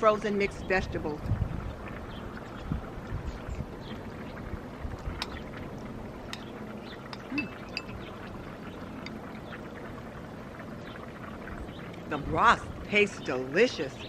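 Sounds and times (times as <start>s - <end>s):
spoon clinking on metal pot: 7.1s - 8.0s.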